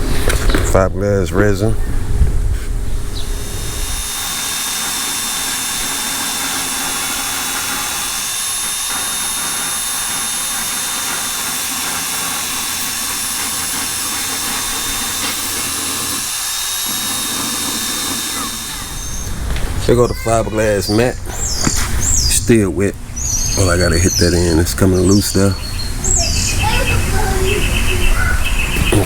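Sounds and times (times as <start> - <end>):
rushing hissing air: 1.6 - 22.3.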